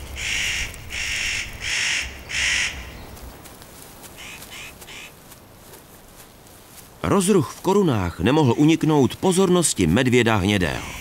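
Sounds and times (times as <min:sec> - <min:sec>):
harsh crow-like bird calls: 0:00.0 - 0:03.2, 0:04.0 - 0:05.2.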